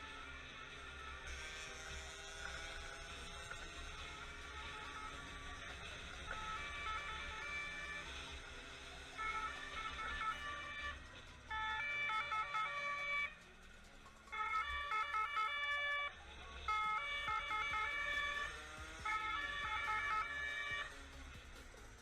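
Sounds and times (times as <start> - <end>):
police siren warbling: 3.5 - 13.4, 14.2 - 21.0.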